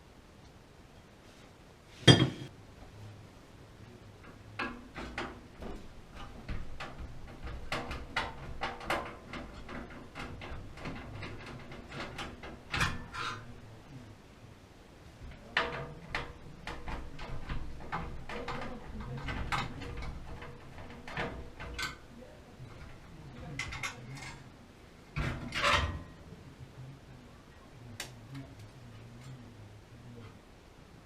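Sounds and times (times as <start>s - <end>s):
tools and parts clattering: 4.2s - 13.5s, 15.5s - 24.5s, 25.1s - 26.2s
small irregular clicks and knocks: 4.2s - 13.7s, 15.2s - 26.2s, 27.9s - 29.5s.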